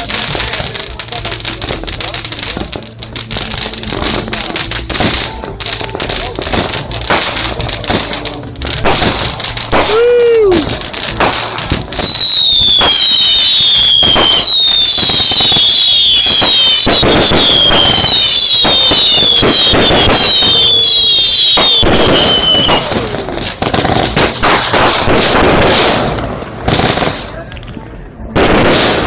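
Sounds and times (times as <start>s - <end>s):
fireworks crackling: 0.0s - 29.0s
fireworks cracks and pops: 0.0s - 29.0s
high-pitched firework whistles: 8.9s - 23.1s.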